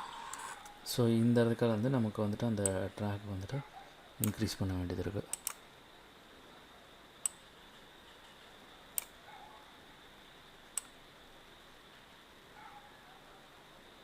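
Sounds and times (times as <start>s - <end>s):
faint steady hiss: 0.0s - 14.0s
computer mouse clicks: 5.3s - 5.6s.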